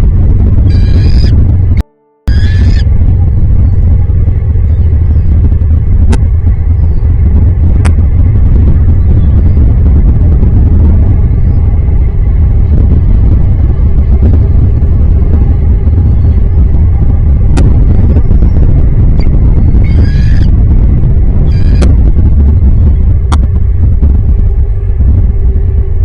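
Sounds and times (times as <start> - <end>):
wind buffeting microphone: 0.0 - 26.0
stuttering bird call: 0.7 - 1.4, 2.3 - 2.9, 19.8 - 20.6, 21.4 - 21.9.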